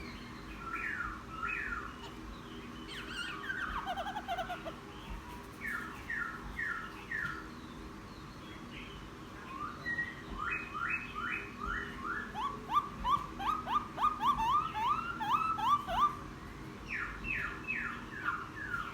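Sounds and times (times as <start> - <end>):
laughingthrush singing: 3.0 - 4.9, 12.3 - 16.2.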